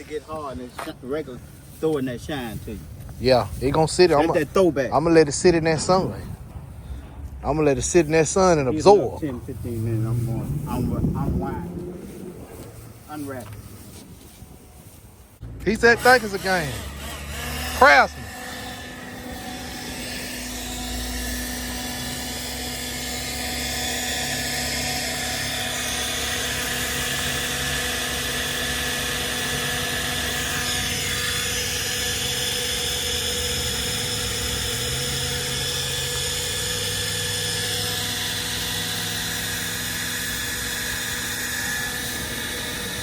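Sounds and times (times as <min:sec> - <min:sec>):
motor droning with whine: 0:00.0 - 0:43.0.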